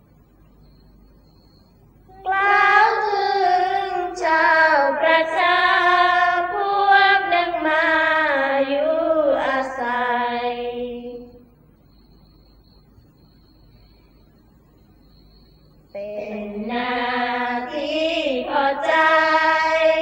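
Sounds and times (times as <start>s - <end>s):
high voice chanting: 2.1s - 11.5s, 16.0s - 20.0s.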